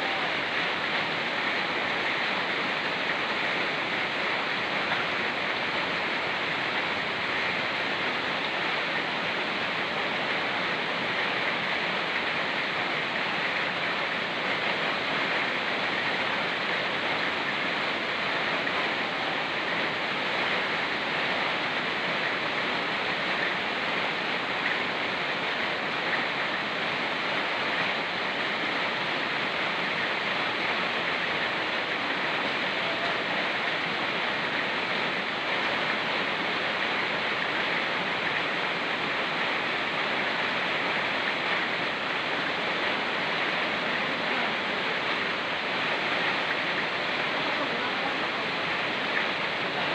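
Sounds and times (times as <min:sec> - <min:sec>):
falling rain: 0:00.0 - 0:49.9
fast-flowing river rushing: 0:00.0 - 0:49.9.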